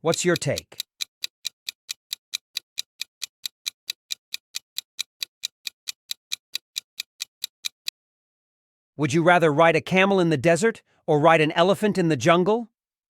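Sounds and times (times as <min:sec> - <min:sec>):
countdown timer ticking: 0:00.0 - 0:07.9.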